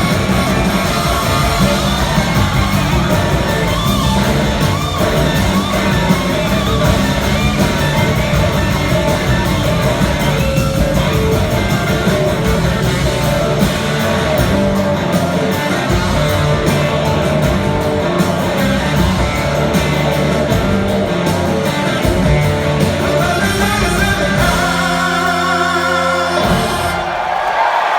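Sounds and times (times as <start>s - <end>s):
electric guitar: 0.0s - 27.2s
rock band playing: 0.0s - 27.9s
person singing: 23.0s - 27.1s.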